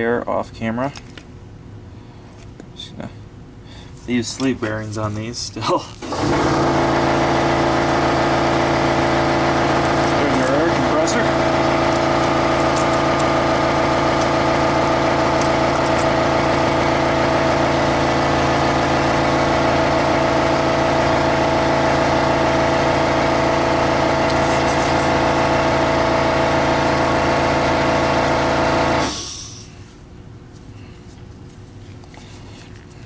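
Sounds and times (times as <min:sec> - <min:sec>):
electric motor whining: 0:06.0 - 0:29.1.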